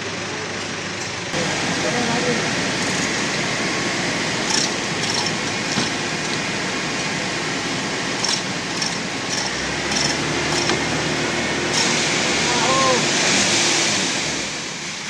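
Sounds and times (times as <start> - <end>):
steady rushing noise: 1.4 - 15.0
light metallic clinks: 4.5 - 6.5, 8.2 - 10.9.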